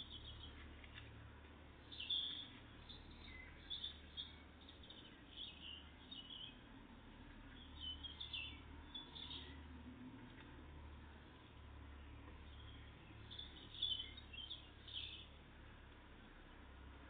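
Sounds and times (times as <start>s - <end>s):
tits chirping: 1.9s - 6.6s.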